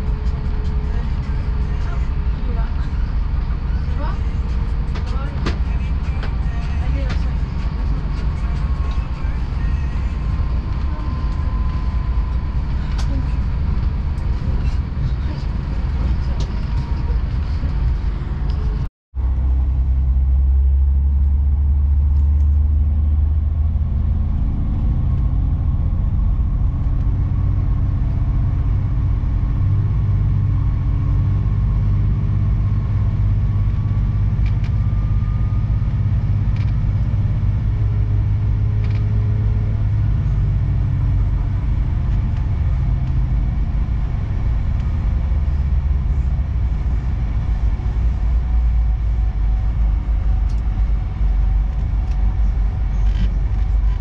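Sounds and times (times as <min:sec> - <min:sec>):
train interior rumble: 0:00.0 - 0:54.0
faint rising whine: 0:07.3 - 0:54.0.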